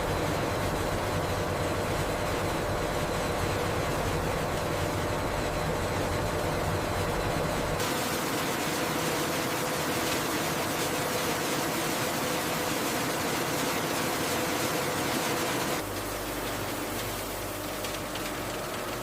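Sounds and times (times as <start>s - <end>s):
factory machinery humming: 0.0s - 19.0s.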